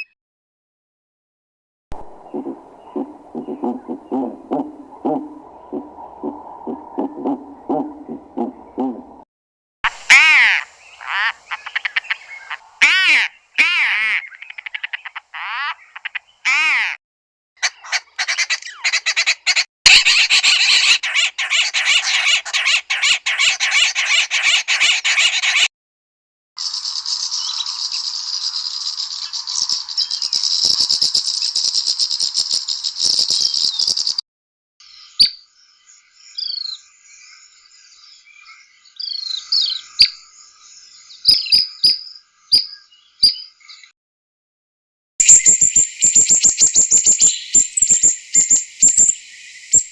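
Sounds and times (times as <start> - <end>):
high hissing bird chorus: 10.4 - 12.7, 45.2 - 49.9.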